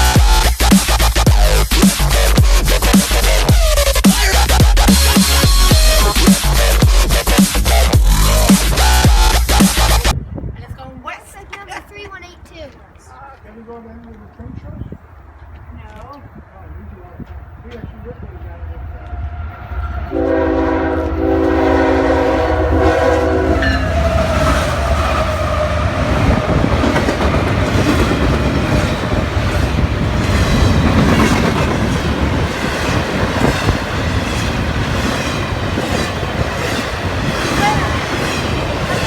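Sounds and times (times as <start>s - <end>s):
train passing rumbling: 0.0s - 39.0s
locomotive air horn: 20.0s - 26.1s.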